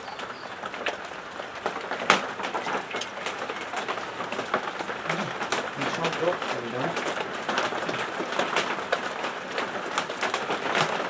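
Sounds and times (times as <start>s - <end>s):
rain falling: 0.0s - 11.0s
raindrops tapping: 0.0s - 11.0s.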